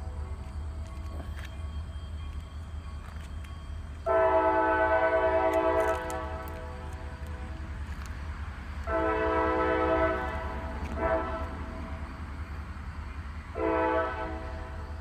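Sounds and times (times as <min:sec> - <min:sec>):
low rumble of train: 0:00.0 - 0:15.0
train horn blasts: 0:04.0 - 0:07.5, 0:08.8 - 0:12.0, 0:13.5 - 0:14.8.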